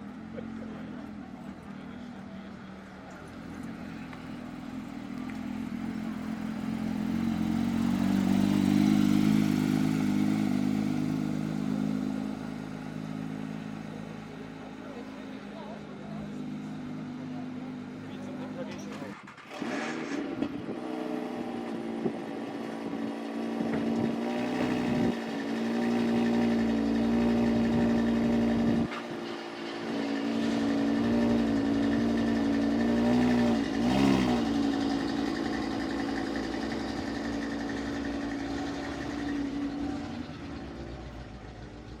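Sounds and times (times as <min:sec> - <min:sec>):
sports car engines idling: 0:00.0 - 0:19.3, 0:21.4 - 0:42.0
engine revs: 0:15.5 - 0:42.0.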